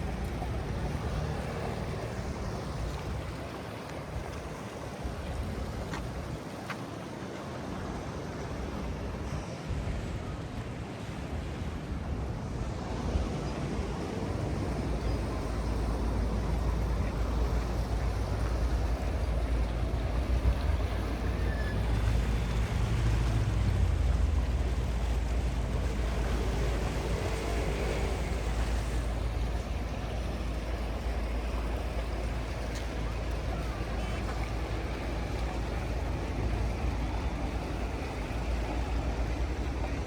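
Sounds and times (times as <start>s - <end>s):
outdoor rumble: 14.1s - 40.0s.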